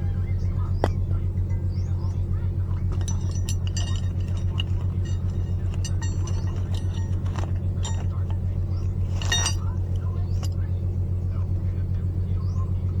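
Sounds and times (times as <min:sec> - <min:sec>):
engine idling: 0:00.0 - 0:13.0
light metallic clinks and taps: 0:02.7 - 0:10.6.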